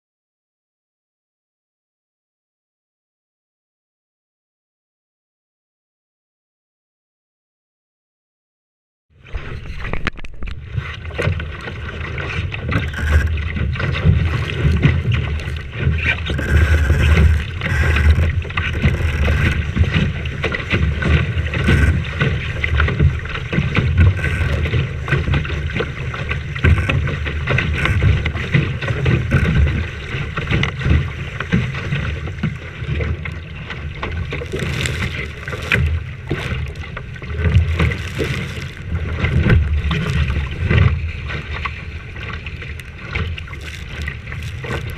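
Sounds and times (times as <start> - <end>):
water rushing around boat: 9.2 - 44.9.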